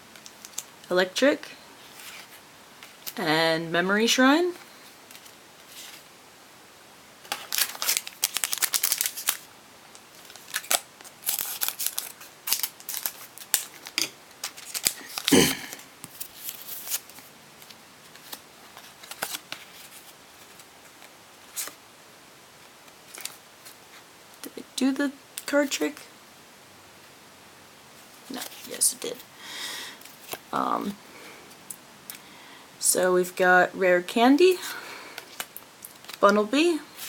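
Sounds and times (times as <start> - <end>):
card pack crinkling: 7.2 - 21.8, 35.2 - 36.3.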